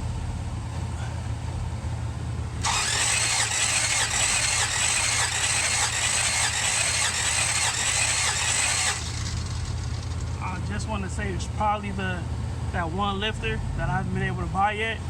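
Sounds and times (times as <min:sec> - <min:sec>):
engine cranking on starter motor: 0:02.6 - 0:10.9.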